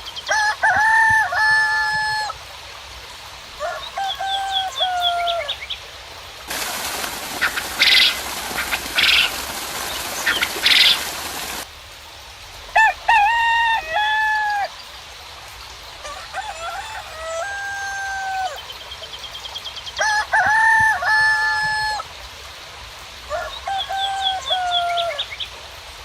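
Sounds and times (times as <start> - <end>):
rain hiss: 0.0 - 26.0
rooster crowing: 0.3 - 2.4, 3.6 - 5.6, 12.8 - 14.7, 16.0 - 18.7, 20.0 - 22.0, 23.3 - 25.3.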